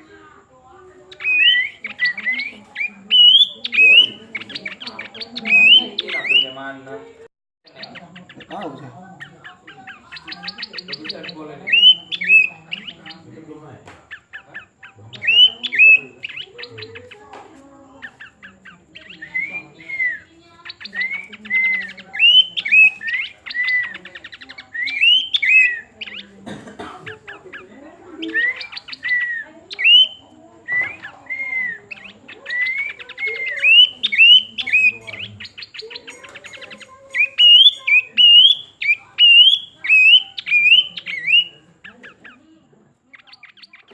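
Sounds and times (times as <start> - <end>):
songbird whistled notes: 1.1 - 6.6, 7.7 - 13.2, 18.0 - 26.3, 28.2 - 42.4.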